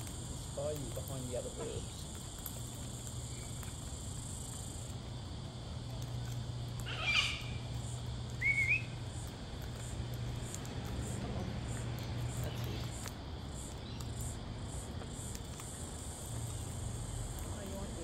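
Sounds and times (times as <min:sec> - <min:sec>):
high insect drone: 0:00.0 - 0:18.0
steady low hum: 0:00.0 - 0:18.0
bird squawk: 0:06.8 - 0:07.7, 0:08.4 - 0:09.0
bird warbling whistle: 0:06.9 - 0:07.6, 0:08.4 - 0:09.0.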